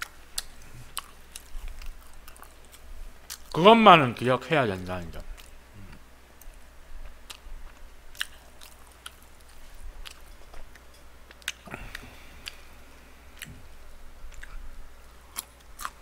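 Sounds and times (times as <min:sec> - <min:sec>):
close chewing: 0:00.0 - 0:03.6, 0:05.4 - 0:12.7, 0:14.3 - 0:16.0.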